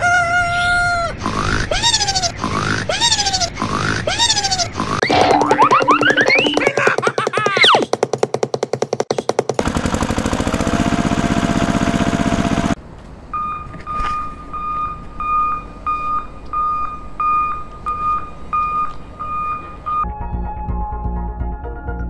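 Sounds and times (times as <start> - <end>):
reversing beeper: 13.3 - 20.0.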